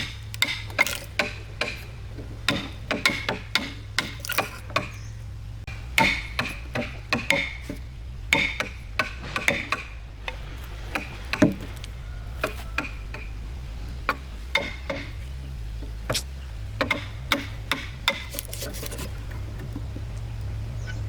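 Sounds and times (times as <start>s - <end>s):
steady low hum: 0.0s - 21.0s
sharp taps and knocks: 5.7s - 13.3s, 14.1s - 15.2s, 15.8s - 20.3s.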